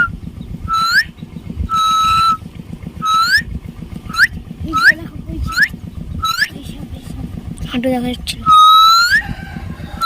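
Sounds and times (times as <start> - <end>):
whistles: 0.0 - 2.4, 3.0 - 3.5, 4.1 - 6.5, 8.5 - 9.3
low traffic rumble: 0.0 - 10.0.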